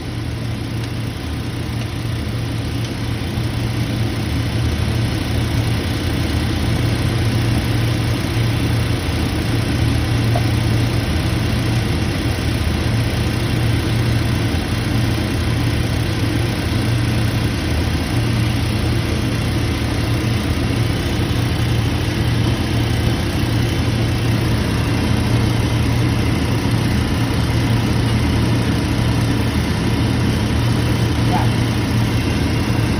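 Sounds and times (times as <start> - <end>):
machine motor humming: 9.4 - 11.5, 28.2 - 32.9.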